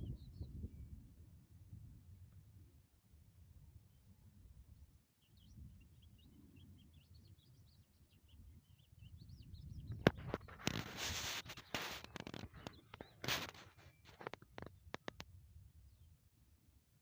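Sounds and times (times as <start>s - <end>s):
small birds twittering: 0.0s - 1.0s, 3.8s - 16.4s.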